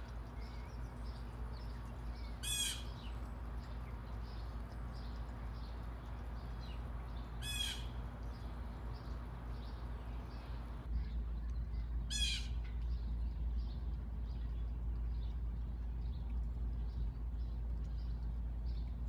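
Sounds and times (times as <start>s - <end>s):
faint bird chirps: 0.0s - 10.8s
steady low hum: 0.0s - 12.1s
woodpecker harsh rolling calls: 2.4s - 3.0s, 7.4s - 8.0s.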